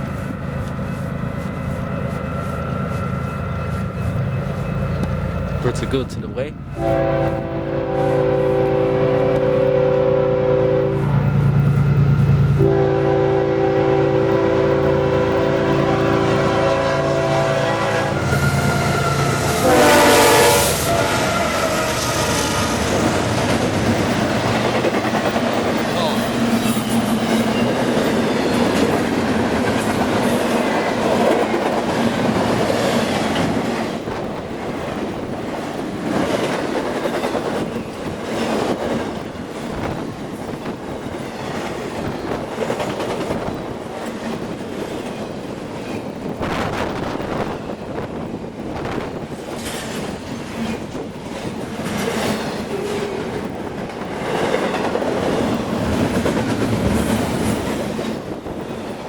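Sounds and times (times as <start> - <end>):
freight train wheels clattering: 17.6 - 59.0.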